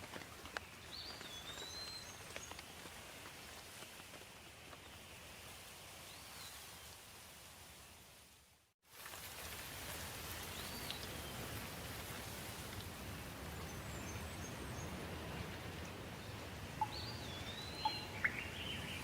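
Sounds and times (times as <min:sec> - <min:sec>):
light rain hiss: 0:00.0 - 0:19.0
water drips: 0:16.7 - 0:18.6
bird whistled call: 0:16.8 - 0:19.0.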